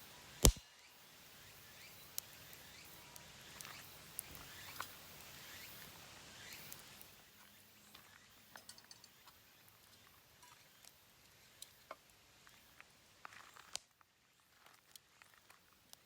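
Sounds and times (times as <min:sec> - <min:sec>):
wood fire crackling: 0:00.4 - 0:00.6, 0:10.8 - 0:16.0.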